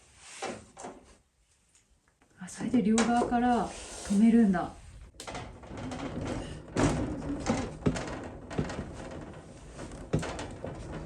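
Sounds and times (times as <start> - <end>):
wooden window frame knocks: 5.5 - 11.0.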